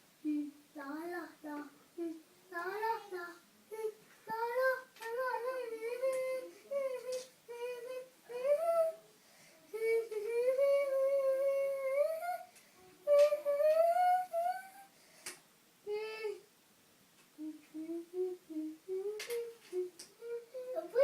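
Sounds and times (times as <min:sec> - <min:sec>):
boy singing wordless tune: 0:00.2 - 0:09.1, 0:09.7 - 0:14.9, 0:15.8 - 0:16.5, 0:17.4 - 0:21.0
faint clicks: 0:06.0 - 0:06.4, 0:07.0 - 0:07.4, 0:12.5 - 0:13.9, 0:19.0 - 0:20.2.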